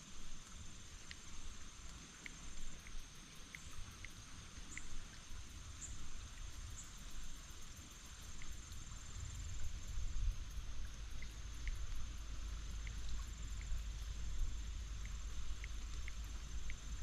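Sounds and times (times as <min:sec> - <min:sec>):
high-pitched insect trill: 0:00.0 - 0:17.0
low rumble: 0:08.6 - 0:17.0.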